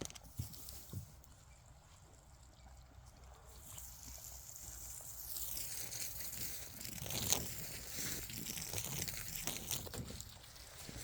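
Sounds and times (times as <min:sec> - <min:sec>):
water rushing from hose: 0:03.5 - 0:11.0.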